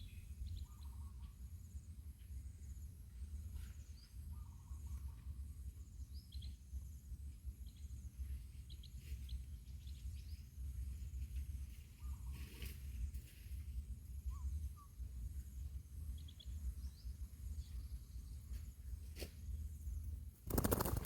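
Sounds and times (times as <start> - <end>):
small birds chirping: 19.8 - 21.0.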